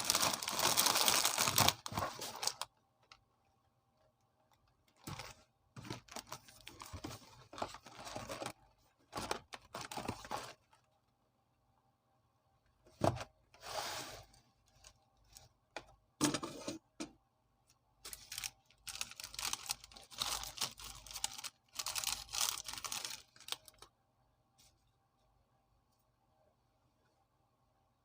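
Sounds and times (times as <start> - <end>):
plastic wrapper crinkling: 0.0 - 3.2, 4.9 - 10.7, 18.1 - 23.9.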